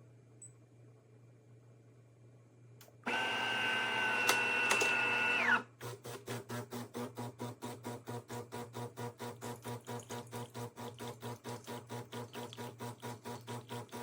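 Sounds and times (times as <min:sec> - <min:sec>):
espresso machine motor whine: 0:03.0 - 0:05.8.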